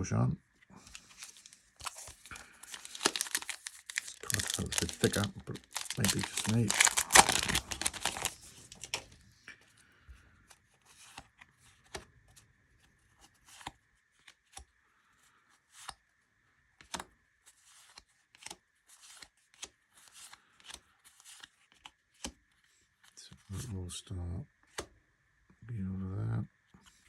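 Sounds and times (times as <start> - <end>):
cards crinkling rustle: 0.8 - 9.2.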